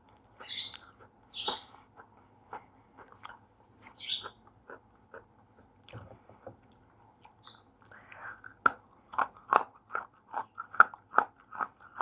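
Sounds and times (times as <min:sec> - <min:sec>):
faint high chirp: 0:00.1 - 0:02.0, 0:03.2 - 0:07.7.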